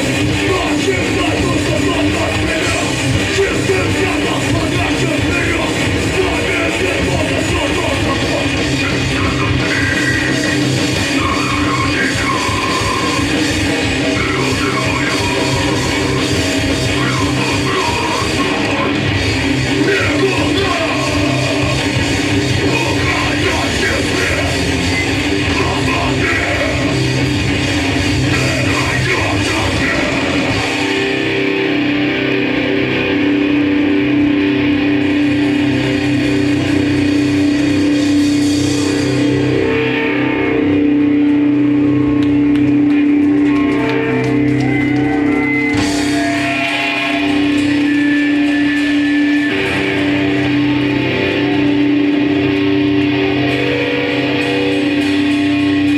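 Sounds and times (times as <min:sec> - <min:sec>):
punk band playing: 0:00.0 - 0:55.9
ringing guitar notes: 0:24.2 - 0:55.9.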